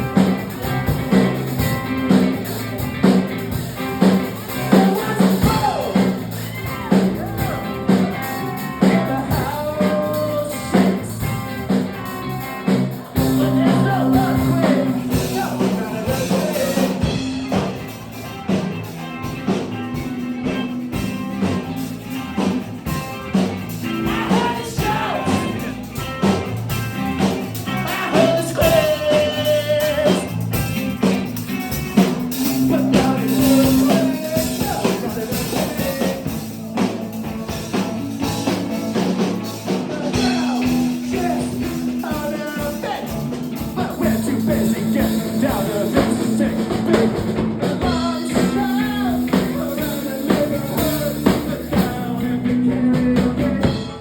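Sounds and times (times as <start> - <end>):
instrumental accompaniment with beat: 0.0 - 54.0
person singing: 4.0 - 17.9, 23.8 - 26.2, 27.2 - 30.6, 32.3 - 37.7, 39.4 - 54.0.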